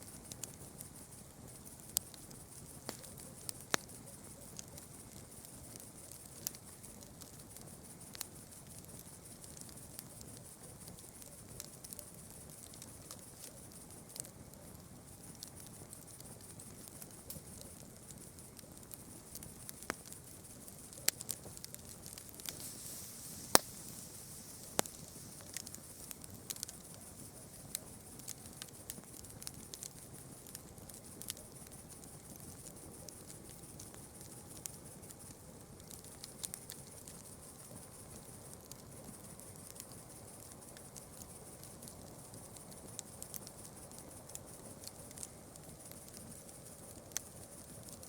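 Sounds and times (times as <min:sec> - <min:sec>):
campfire crackling: 0:00.0 - 0:48.0
faint high-pitched hiss: 0:00.0 - 0:48.0
loud pops of burning wood: 0:15.3 - 0:35.1.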